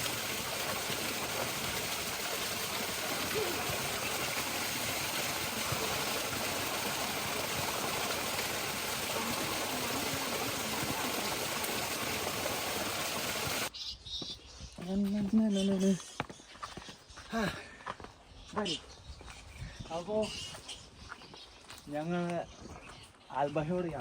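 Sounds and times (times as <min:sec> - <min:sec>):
water rushing: 0:00.0 - 0:13.7.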